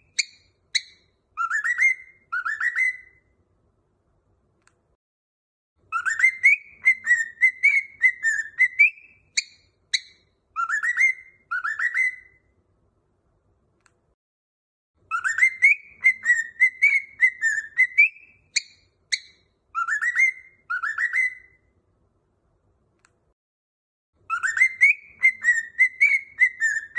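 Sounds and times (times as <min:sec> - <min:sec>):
cockatiel whistling: 0:00.0 - 0:03.3, 0:05.9 - 0:12.5, 0:15.1 - 0:21.7, 0:24.3 - 0:26.9.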